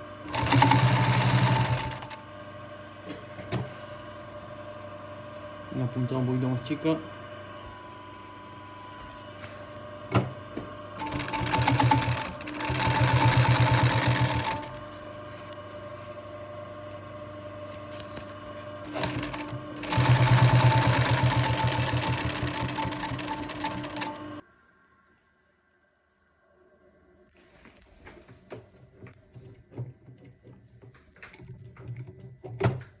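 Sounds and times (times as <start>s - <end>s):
sewing machine stitching leather: 0.2s - 2.2s, 11.0s - 15.0s, 17.9s - 24.3s.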